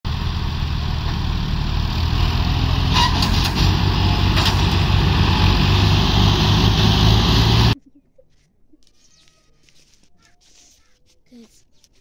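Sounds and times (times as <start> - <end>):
tractor diesel engine running: 0.0 - 7.8.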